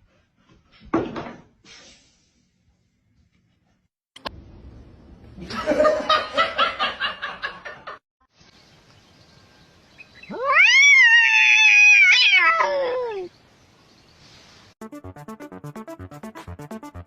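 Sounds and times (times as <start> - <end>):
cat meowing: 10.3 - 13.3.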